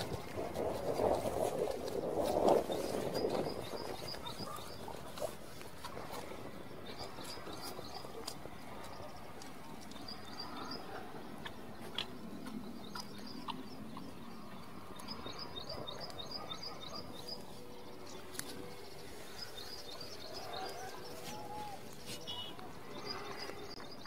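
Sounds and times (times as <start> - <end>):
faint outdoor background noise: 0.0 - 24.0
small bird chirping: 9.8 - 24.0.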